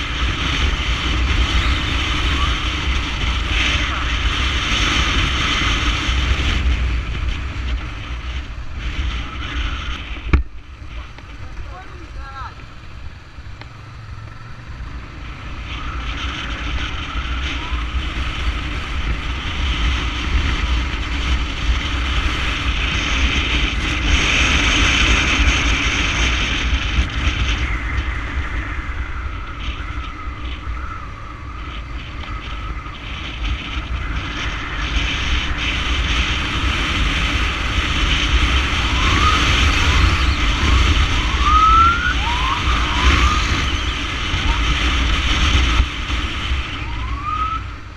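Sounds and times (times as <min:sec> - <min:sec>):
motorcycle engine rumble: 0:00.0 - 0:47.9
wind: 0:00.0 - 0:47.9
siren wailing: 0:17.1 - 0:18.1, 0:38.3 - 0:45.8, 0:46.4 - 0:47.9.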